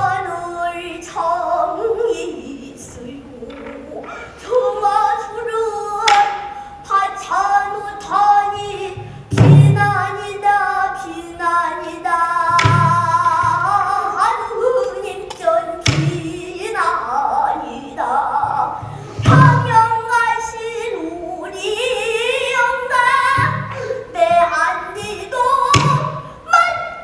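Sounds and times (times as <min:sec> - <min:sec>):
child singing: 0:00.0 - 0:27.0
drum clicks: 0:06.0 - 0:06.5, 0:12.5 - 0:14.2, 0:23.4 - 0:26.9
barrel drum thumps: 0:08.9 - 0:10.2, 0:12.5 - 0:14.0, 0:15.8 - 0:16.4, 0:18.4 - 0:20.0, 0:23.3 - 0:26.9.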